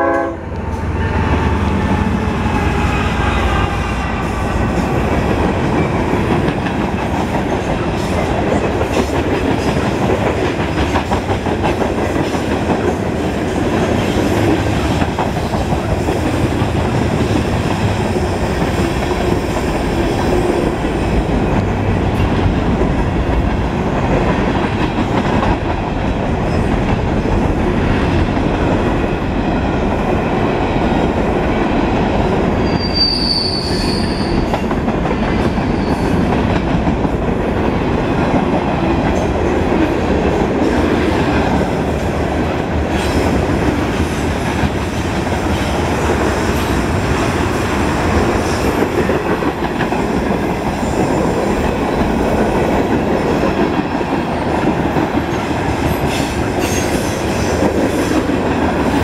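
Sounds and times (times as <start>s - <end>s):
steel wheels rumbling on rail: 0.0s - 59.0s
wheel squeal: 32.6s - 34.6s.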